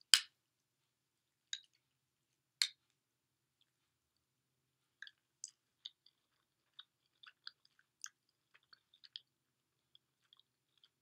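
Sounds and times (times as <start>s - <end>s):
person chewing cereal: 4.9s - 11.0s.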